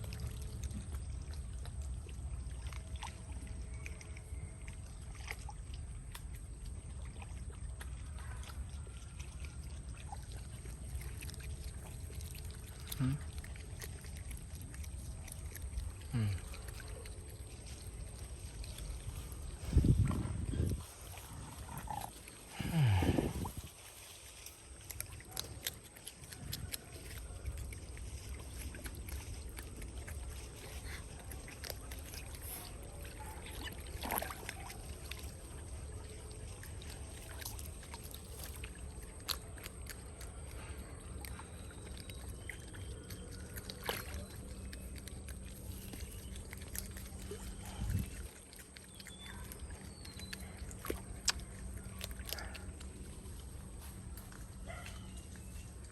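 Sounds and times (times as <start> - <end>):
water sloshing and splashing: 0.0 - 55.9
steady low rumble: 17.3 - 24.4.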